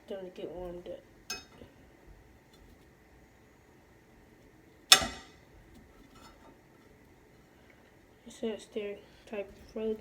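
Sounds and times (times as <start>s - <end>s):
metal fork knocking on a pan: 1.3s - 1.6s, 4.9s - 5.4s.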